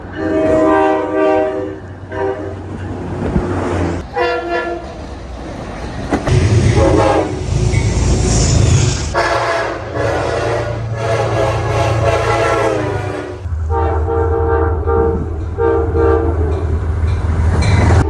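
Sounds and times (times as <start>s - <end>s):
passing train rumble: 0.0s - 18.0s
train horn chord blasts: 0.2s - 2.7s, 6.3s - 18.0s.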